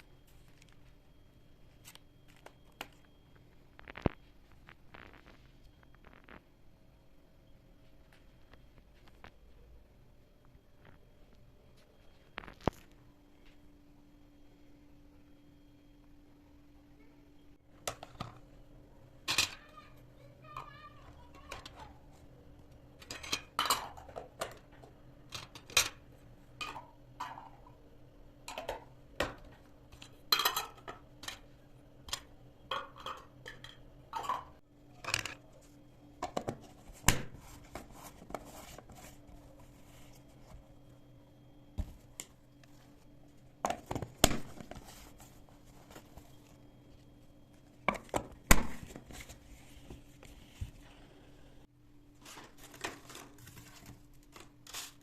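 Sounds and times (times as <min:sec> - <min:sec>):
faint steady hum: 0:00.0 - 0:55.0
dishes and pots clinking: 0:23.0 - 0:24.5, 0:30.2 - 0:31.4, 0:32.7 - 0:34.6.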